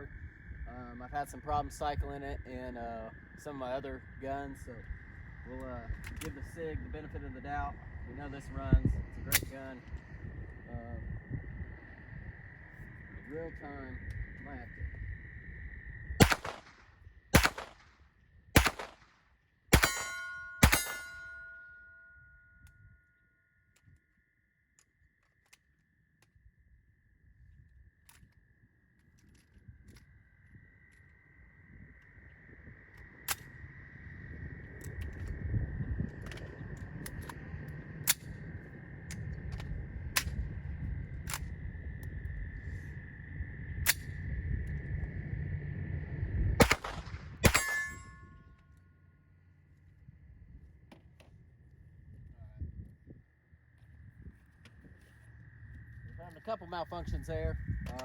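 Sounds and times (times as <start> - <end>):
low rumble: 0.0 - 19.1, 29.5 - 58.0
steady high-pitched hum: 0.0 - 58.0
pistol shots: 16.2 - 16.8, 17.4 - 17.9, 18.6 - 19.1, 19.7 - 21.6, 46.6 - 48.1
metallic ringing: 19.8 - 22.9, 47.5 - 48.5.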